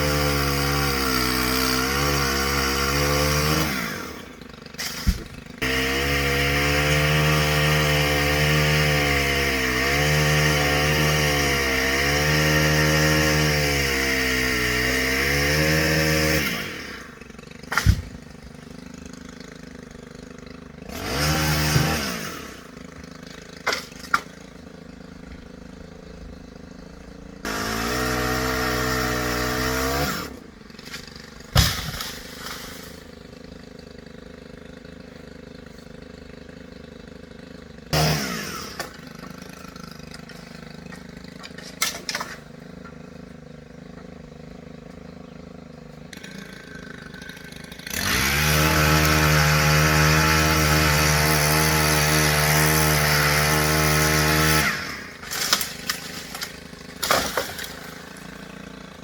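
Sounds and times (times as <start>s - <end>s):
chainsaw cutting and revving: 0.0s - 59.0s.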